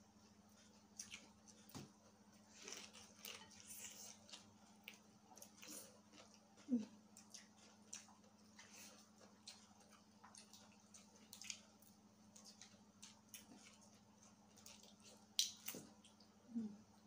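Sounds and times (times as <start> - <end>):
mouth clicks and chewing smacks: 2.7 - 16.4.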